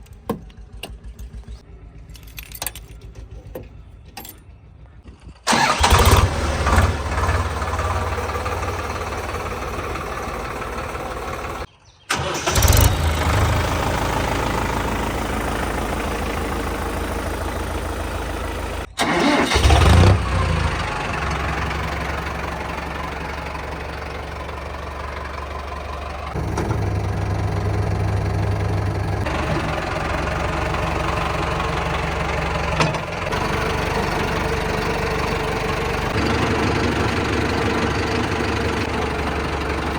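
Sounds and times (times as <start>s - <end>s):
diesel tractor engine: 0.0s - 39.9s.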